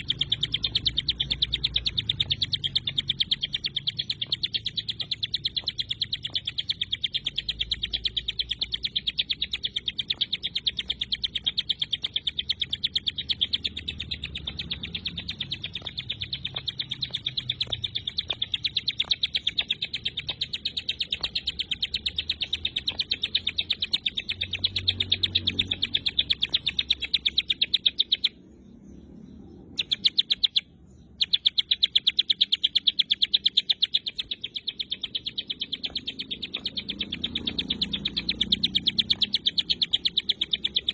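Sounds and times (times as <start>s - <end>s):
bird singing rapid chattering notes: 0.0s - 40.9s.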